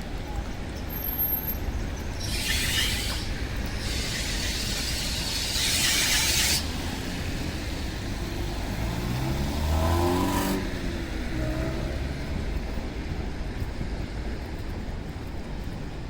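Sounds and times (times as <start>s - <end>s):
tyre hiss on wet road: 0.9s - 11.0s
car engine accelerating past: 6.8s - 12.4s.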